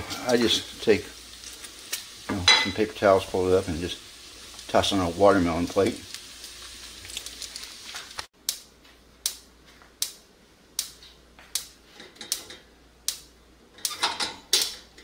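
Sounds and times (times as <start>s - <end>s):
bacon sizzling in skillet: 0.0s - 8.3s.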